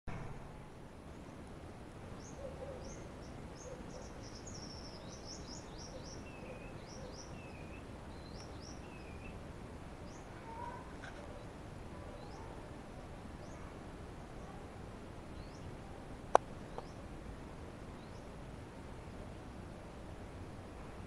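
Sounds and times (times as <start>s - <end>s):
low background noise: 0.1s - 21.0s
bird chirping: 2.2s - 9.4s.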